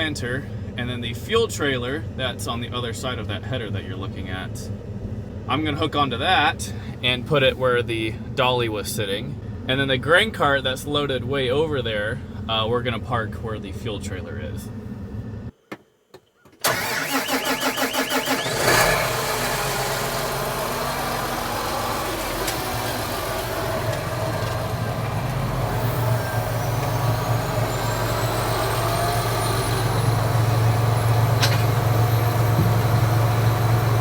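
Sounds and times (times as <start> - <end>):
engine idling: 16.6 - 34.0
engine starter cranking: 16.6 - 34.0.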